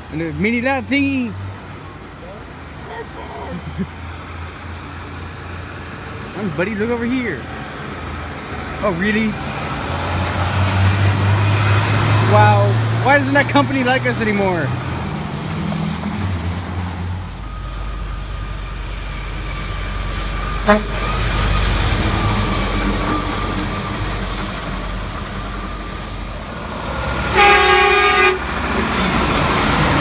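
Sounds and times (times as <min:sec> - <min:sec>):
heavy truck engine rumbling: 0:00.0 - 0:30.0
air horn blast: 0:20.5 - 0:21.7, 0:27.2 - 0:28.5.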